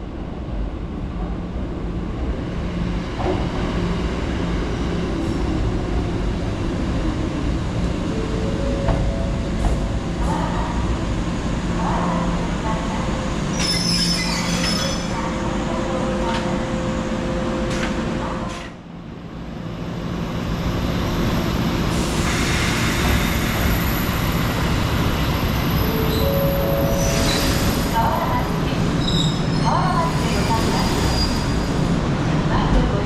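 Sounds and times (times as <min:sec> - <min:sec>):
train rumbling on rails: 0:00.0 - 0:33.0
train wheel squeal: 0:13.5 - 0:15.1, 0:25.7 - 0:27.9, 0:29.0 - 0:31.9.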